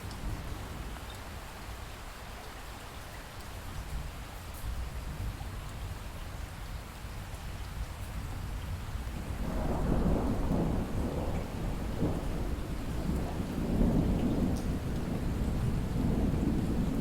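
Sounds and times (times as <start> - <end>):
light rain and drips: 0.0 - 17.0
distant thunder rumbling: 9.3 - 17.0.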